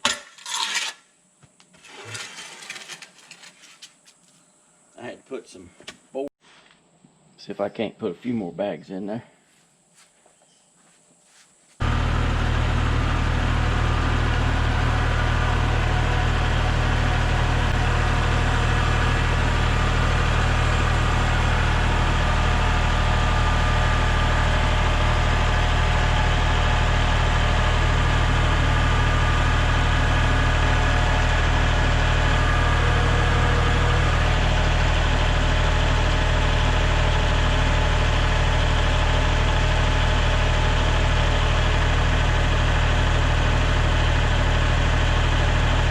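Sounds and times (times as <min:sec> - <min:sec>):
engine running steadily: 0:11.8 - 0:45.9.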